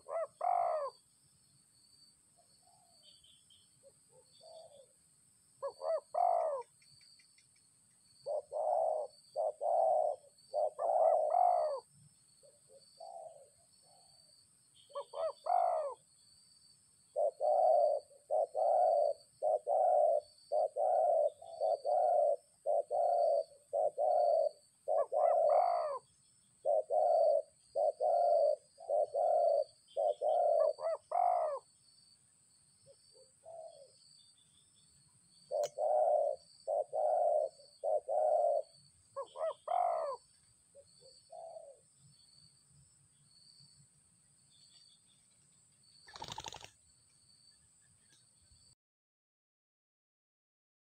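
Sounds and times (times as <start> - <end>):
dove cooing: 0.0 - 1.0, 3.8 - 4.9, 5.6 - 6.7, 8.2 - 14.2, 14.9 - 16.0, 17.1 - 31.7, 32.9 - 34.0, 35.5 - 41.8, 46.1 - 46.7.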